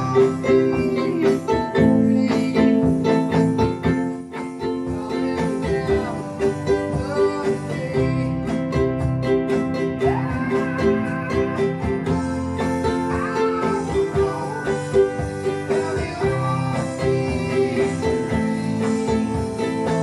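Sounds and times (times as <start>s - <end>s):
ukulele strumming: 0.0s - 20.0s.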